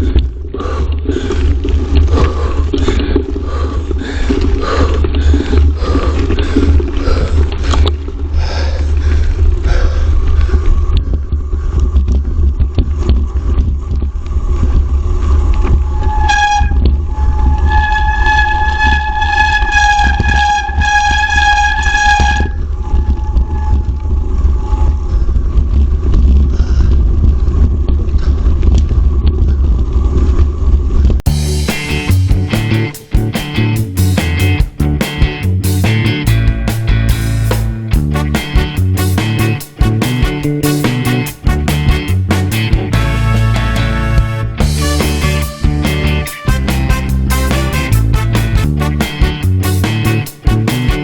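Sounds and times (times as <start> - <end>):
steady horn-like tone: 15.9 - 23.9, 38.0 - 51.0.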